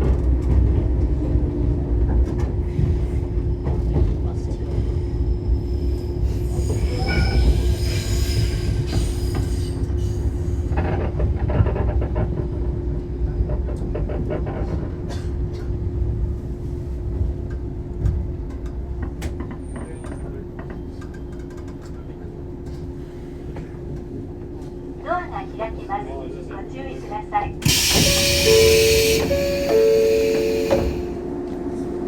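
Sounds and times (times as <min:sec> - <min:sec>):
wheels and brakes squealing: 0:05.4 - 0:09.8, 0:27.6 - 0:31.1
train wheels running: 0:27.6 - 0:31.2.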